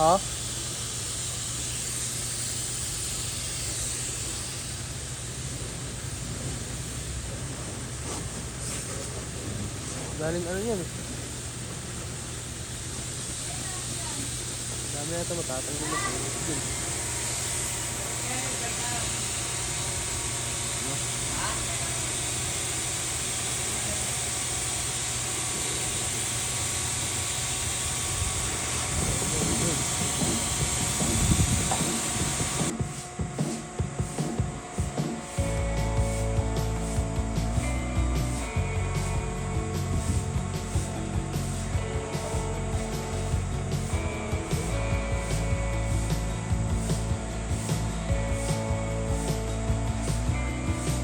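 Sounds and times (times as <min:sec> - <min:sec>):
pressure washer spraying water: 0:00.0 - 0:51.0
pump humming: 0:00.0 - 0:51.0
low hum: 0:28.1 - 0:51.0.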